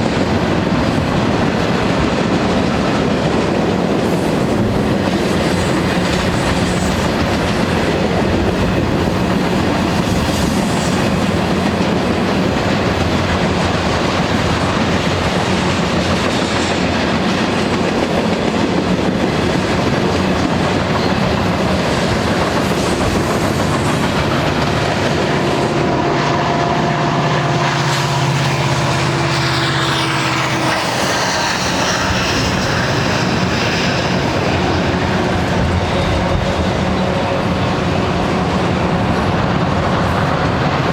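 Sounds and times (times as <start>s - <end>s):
train wheels clicking over rail joints: 0.0s - 40.9s.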